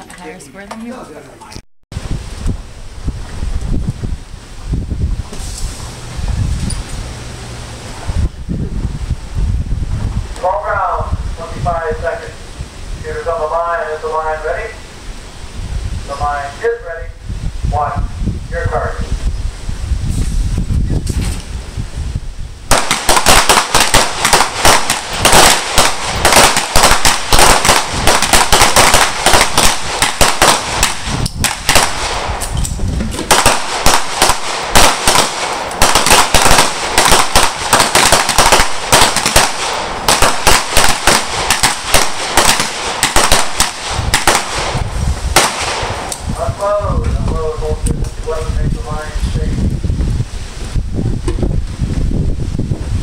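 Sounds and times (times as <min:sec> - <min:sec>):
rapid handgun shots: 0:22.7 - 0:32.4, 0:33.3 - 0:44.8, 0:45.4 - 0:46.1.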